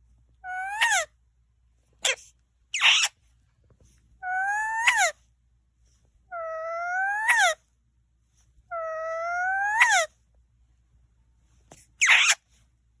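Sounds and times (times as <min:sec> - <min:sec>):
short harsh squawks: 0:02.0 - 0:03.2, 0:11.8 - 0:12.5.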